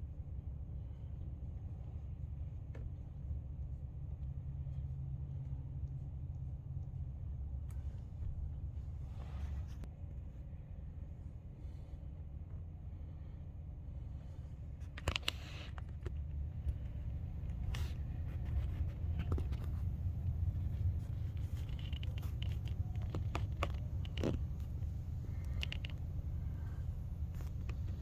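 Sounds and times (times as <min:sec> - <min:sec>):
vehicle low rumble: 0:00.0 - 0:28.0
light clicks and knocks: 0:14.8 - 0:28.0.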